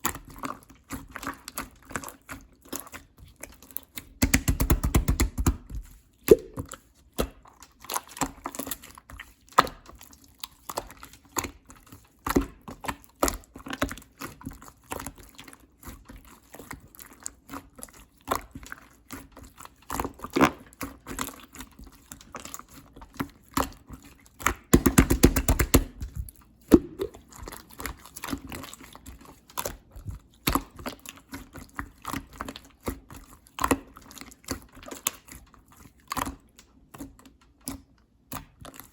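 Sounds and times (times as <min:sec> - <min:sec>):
slime squished by hand: 0:04.0 - 0:06.8, 0:24.8 - 0:27.6.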